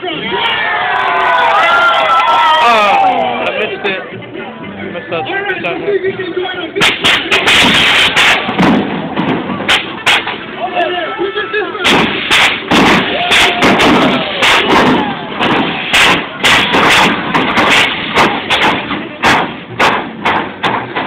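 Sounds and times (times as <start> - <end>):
crowd noise: 0.0 - 21.0
air suspension hissing bursts: 11.9 - 18.9.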